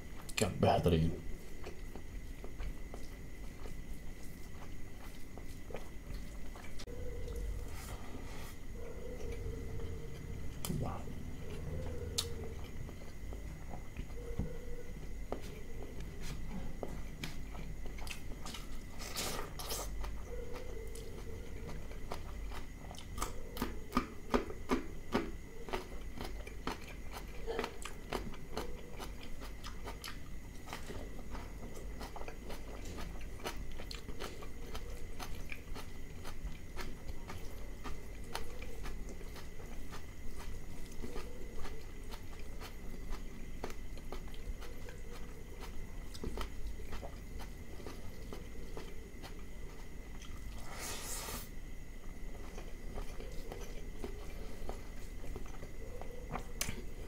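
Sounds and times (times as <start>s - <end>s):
wet chewing and lip smacks: 15.0s - 50.6s, 52.3s - 57.0s.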